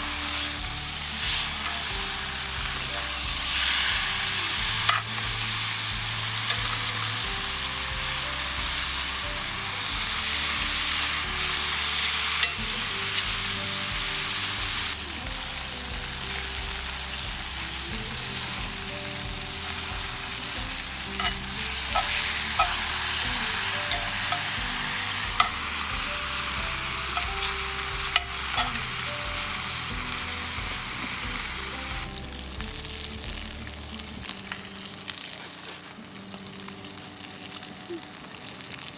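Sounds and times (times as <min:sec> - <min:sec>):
food sizzling in a skillet: 0:00.0 - 0:38.9
soft background music: 0:00.0 - 0:38.9
utensil clicking against pan: 0:21.2 - 0:29.1.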